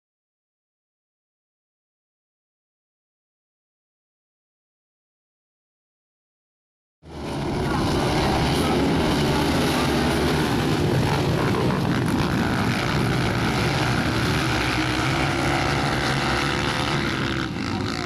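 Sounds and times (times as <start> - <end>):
motocross bike engines revving: 7.1 - 18.0.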